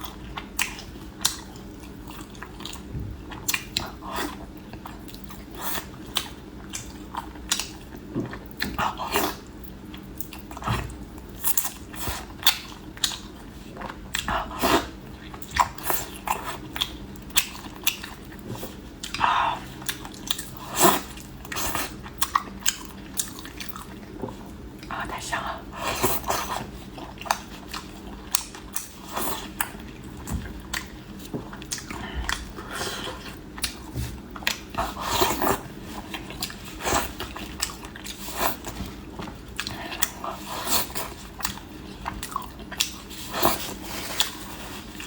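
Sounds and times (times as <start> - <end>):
chewing and mouth smacks: 0.0 - 14.4, 15.1 - 25.3, 26.0 - 45.0.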